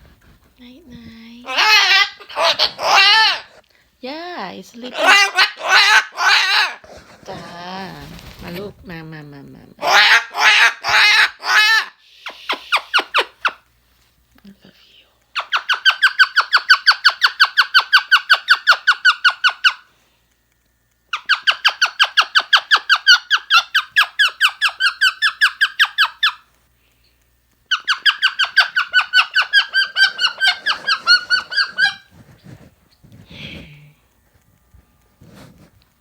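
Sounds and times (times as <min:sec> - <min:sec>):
parrot squeaky calls: 0:01.5 - 0:03.6, 0:04.9 - 0:06.8, 0:15.4 - 0:19.8, 0:21.1 - 0:26.5, 0:27.7 - 0:32.1.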